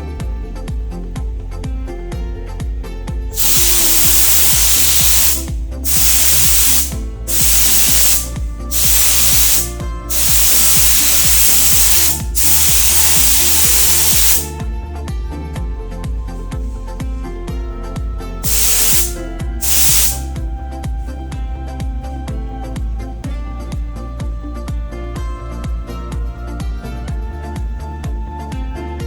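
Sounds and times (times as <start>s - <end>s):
background music with steady beat: 0.0s - 29.0s
paint spray gun hissing: 3.4s - 14.6s, 18.4s - 20.4s.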